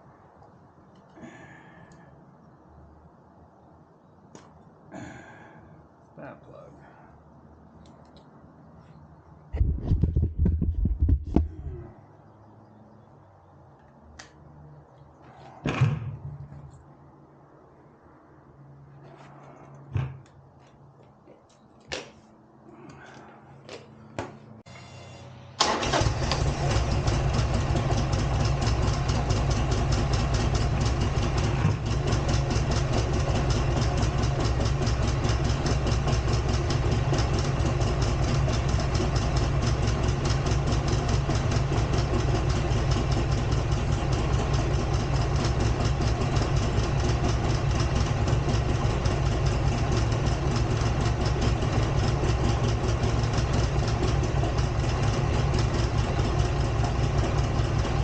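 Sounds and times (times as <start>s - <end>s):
motorcycle engine idling: 25.7s - 58.0s.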